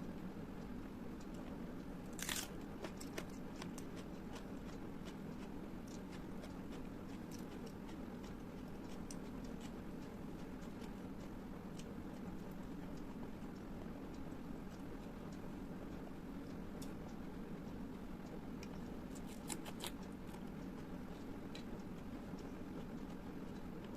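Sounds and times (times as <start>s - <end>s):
low background hum: 0.0s - 23.9s
crunchy bite: 2.1s - 3.7s, 19.1s - 20.4s
chewing with wet mouth clicks: 2.2s - 14.9s, 18.6s - 23.9s.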